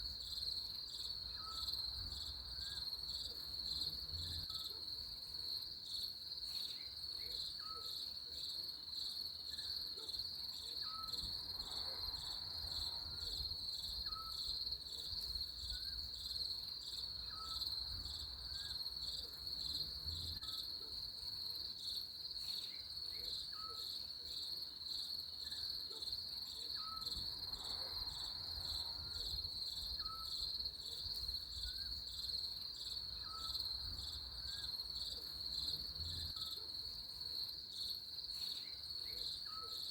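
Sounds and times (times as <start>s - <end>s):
crickets trilling: 26.7s - 37.5s.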